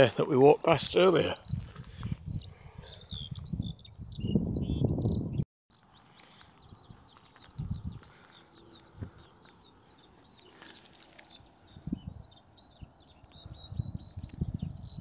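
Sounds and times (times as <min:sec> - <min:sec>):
songbird chirping: 0:00.0 - 0:15.0
wind buffeting microphone: 0:00.8 - 0:05.4, 0:06.6 - 0:10.2, 0:11.4 - 0:15.0.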